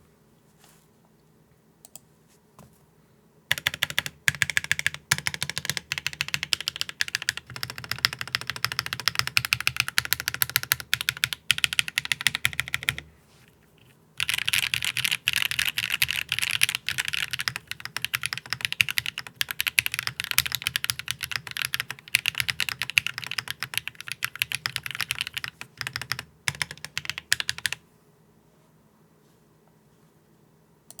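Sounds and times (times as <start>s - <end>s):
mechanical keyboard typing: 3.5s - 13.1s, 14.2s - 27.8s.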